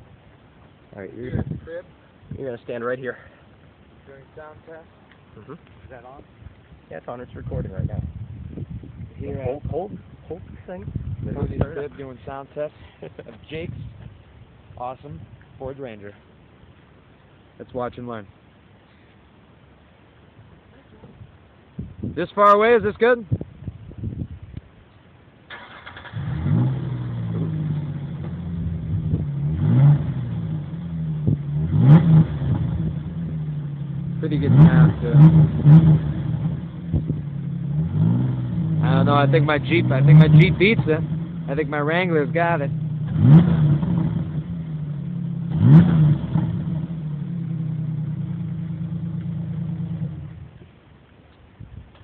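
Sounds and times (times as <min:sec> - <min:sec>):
engine revving: 0:25.5 - 0:50.5
truck engine starting and idling: 0:25.5 - 0:50.6.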